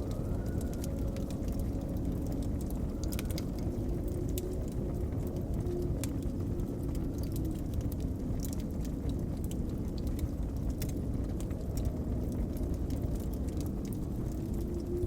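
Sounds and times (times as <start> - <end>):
blizzard wind rumble: 0.0 - 15.0
wood fire crackling and popping: 0.0 - 15.0.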